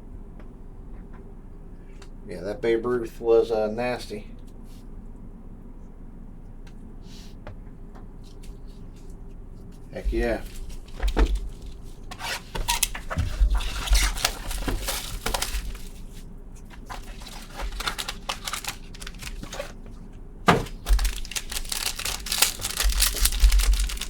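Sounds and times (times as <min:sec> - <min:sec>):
plastic packaging crinkling: 0:10.1 - 0:24.0.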